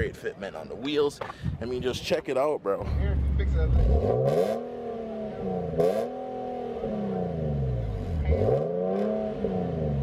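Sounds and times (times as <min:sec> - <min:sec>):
car engine revving: 0:02.8 - 0:10.0.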